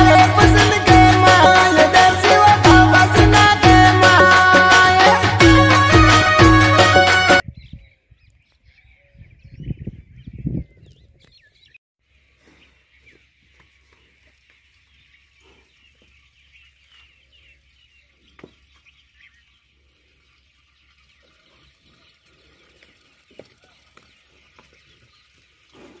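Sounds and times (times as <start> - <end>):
small birds chirping: 7.4 - 26.0.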